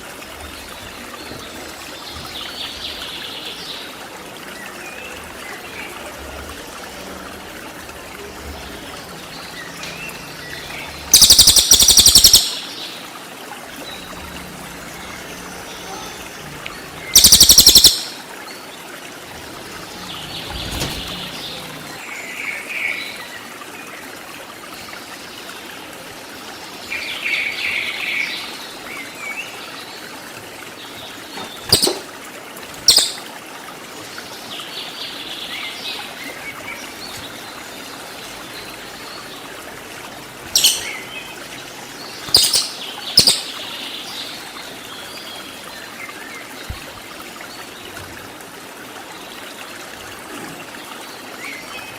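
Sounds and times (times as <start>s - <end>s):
running water: 0.0s - 51.9s
songbird chirping: 8.4s - 13.0s, 13.8s - 18.3s, 19.5s - 22.0s, 32.8s - 33.3s, 40.5s - 45.6s
sharp loud bird call notes: 11.1s - 12.8s, 17.1s - 18.2s.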